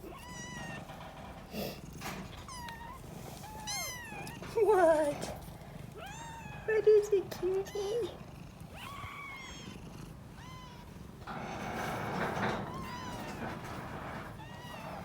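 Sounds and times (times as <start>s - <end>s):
kittens mewing: 1.5s - 11.2s.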